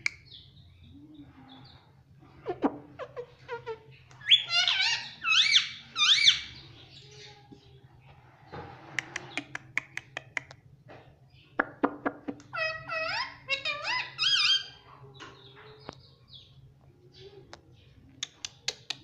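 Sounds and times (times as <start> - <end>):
parrot calling: 2.4 - 6.6, 12.3 - 14.8
parrot clicks and chirps: 9.0 - 10.6, 18.2 - 19.0.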